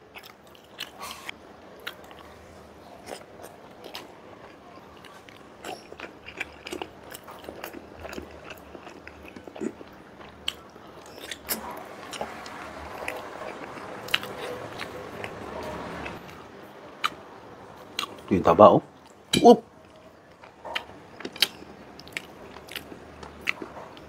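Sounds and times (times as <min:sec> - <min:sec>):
close chewing: 0:00.1 - 0:17.2, 0:19.8 - 0:24.0
lip smacking: 0:12.9 - 0:16.4.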